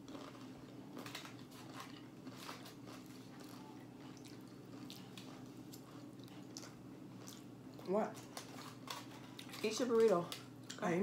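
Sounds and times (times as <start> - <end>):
person chewing and lip-smacking: 0.0 - 9.6.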